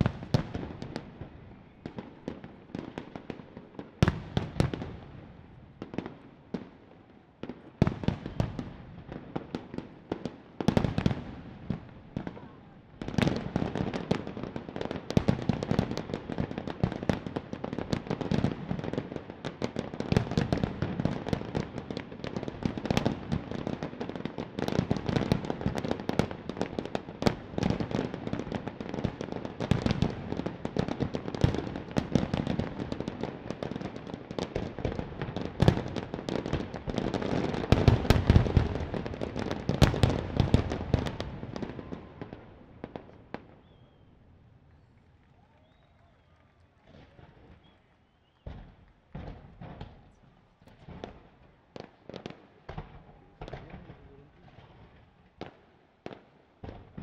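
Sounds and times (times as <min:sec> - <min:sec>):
fireworks bangs and crackling: 0:00.0 - 0:57.0
deep fireworks booms: 0:27.2 - 0:44.0.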